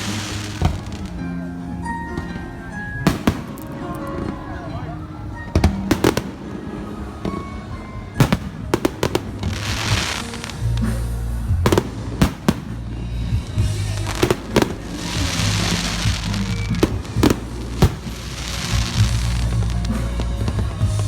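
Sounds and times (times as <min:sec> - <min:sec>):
fireworks bangs: 0:00.0 - 0:21.0
fireworks crackling hiss: 0:00.0 - 0:21.0
music with low bass notes: 0:00.0 - 0:21.0.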